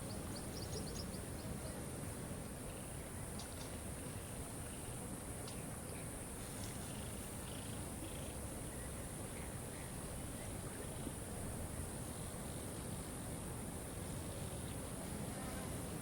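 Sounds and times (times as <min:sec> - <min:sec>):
bird chirps: 0:00.0 - 0:01.8.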